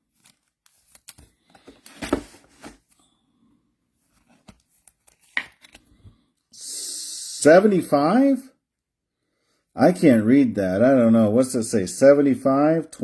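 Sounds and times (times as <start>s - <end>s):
cards and wrappers rustling: 0.0s - 3.0s, 4.0s - 6.0s.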